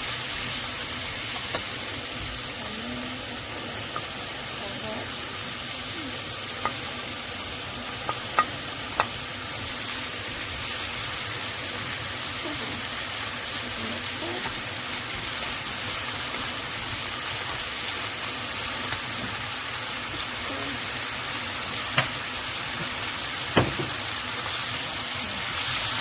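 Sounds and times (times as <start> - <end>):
food sizzling in frying pan: 0.0 - 26.0
utensil clicking against pan: 8.0 - 9.2.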